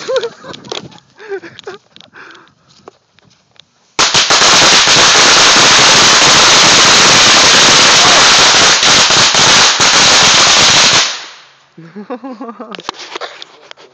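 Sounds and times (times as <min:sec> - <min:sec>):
firecrackers rapid bangs: 0:04.0 - 0:11.6.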